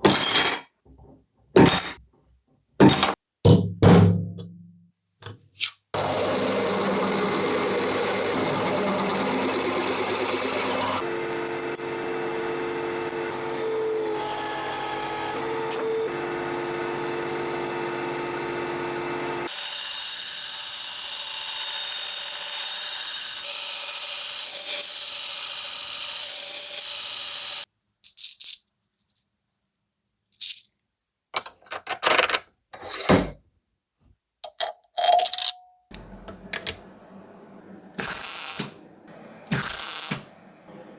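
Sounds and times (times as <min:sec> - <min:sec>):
power tool running: 0:06.0 - 0:27.7, 0:35.9 - 0:40.9
metallic clicks and clinks: 0:34.4 - 0:35.7.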